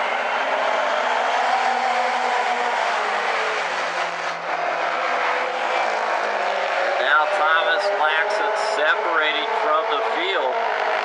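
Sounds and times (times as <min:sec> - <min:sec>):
racing car engines droning: 0:00.0 - 0:11.0.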